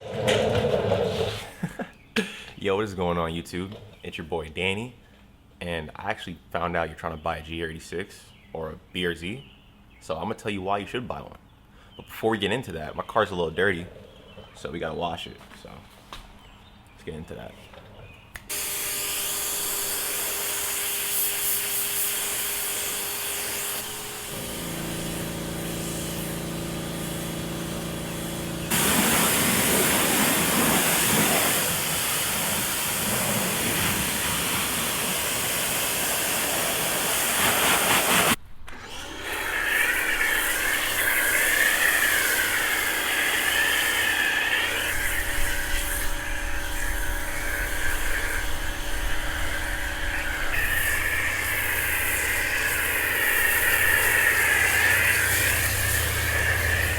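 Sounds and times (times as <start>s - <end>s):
machine hum: 18.5s - 31.1s, 38.7s - 56.9s
water spray hissing: 18.5s - 38.4s, 39.6s - 56.9s.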